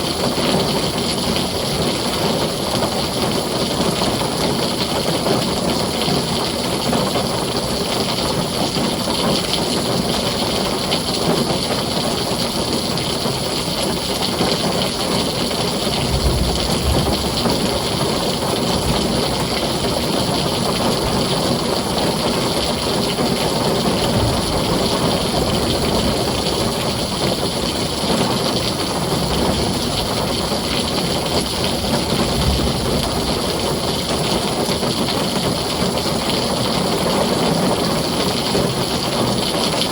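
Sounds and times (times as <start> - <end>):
heavy rain on a tin roof: 0.0 - 39.9
low rumbles of thunder: 15.0 - 35.2.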